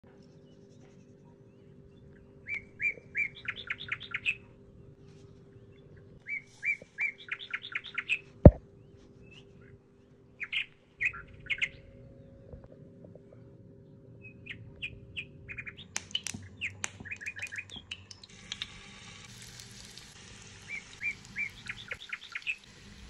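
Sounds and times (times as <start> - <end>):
faint steady hum: 0.1 - 23.0
bird singing trill: 0.4 - 12.7, 13.8 - 18.3, 20.6 - 22.7
sharp click: 16.0 - 18.7.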